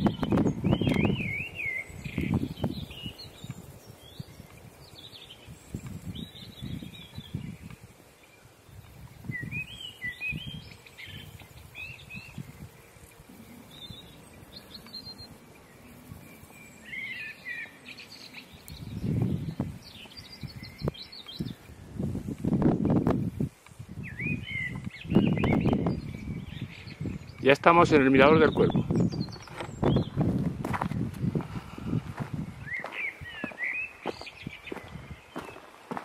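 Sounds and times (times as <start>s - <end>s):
low rumbles on microphone: 0.0s - 4.4s, 18.8s - 27.4s, 28.2s - 32.7s
small birds chirping: 0.0s - 36.0s.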